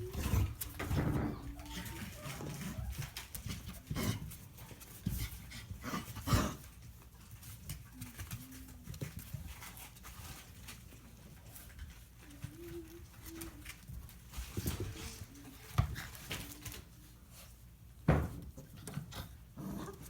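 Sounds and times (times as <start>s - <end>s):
puppy whining: 0.0s - 3.3s
puppies panting: 0.0s - 17.8s.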